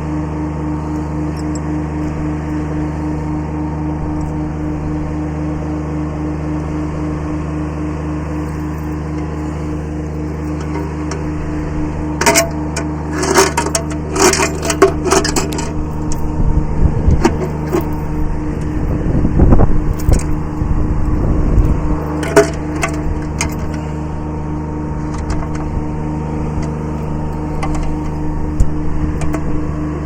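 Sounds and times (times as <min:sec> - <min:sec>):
tractor diesel engine running: 0:00.0 - 0:30.0
sharp cracks and clanks: 0:10.5 - 0:16.3.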